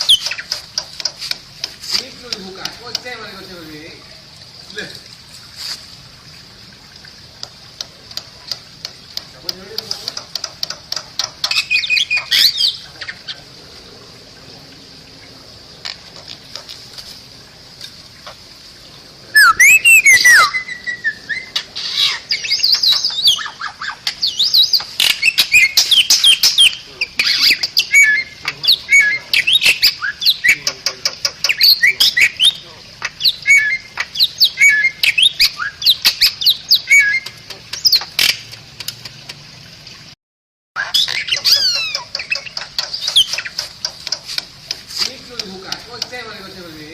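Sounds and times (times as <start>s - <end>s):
starling singing whistles and chatter: 19.4s - 23.6s, 24.3s - 30.8s, 31.5s - 38.1s.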